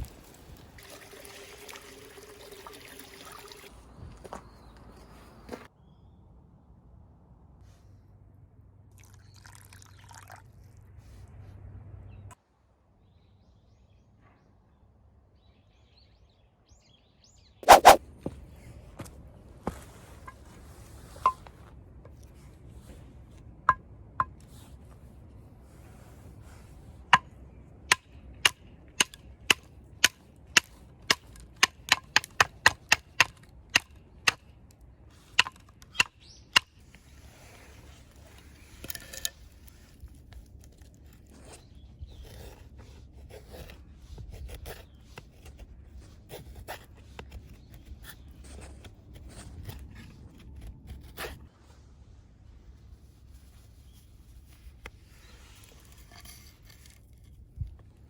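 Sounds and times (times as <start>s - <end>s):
scraping: 17.6s - 18.0s.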